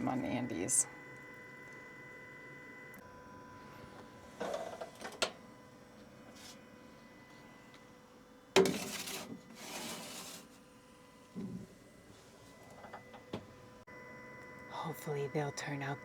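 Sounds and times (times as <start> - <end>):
food scraping: 8.6 - 10.5.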